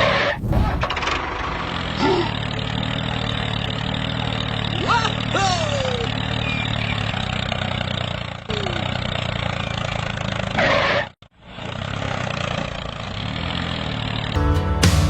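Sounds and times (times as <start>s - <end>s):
rushing noise: 0.0s - 2.0s
small engine running: 1.4s - 14.4s.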